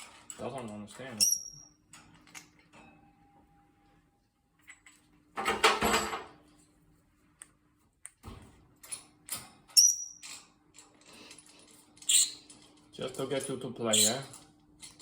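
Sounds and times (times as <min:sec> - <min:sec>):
parrot toy and cage rattling: 0:08.8 - 0:15.0.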